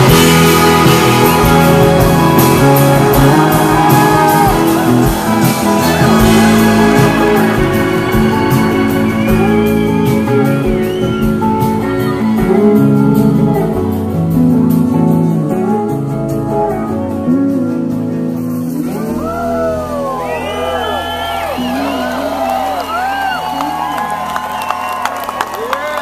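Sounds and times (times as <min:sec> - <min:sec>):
crowd whooping: 0:00.0 - 0:13.7, 0:18.9 - 0:26.0
electric guitar lead: 0:00.0 - 0:26.0
live blues-rock band: 0:00.0 - 0:26.0.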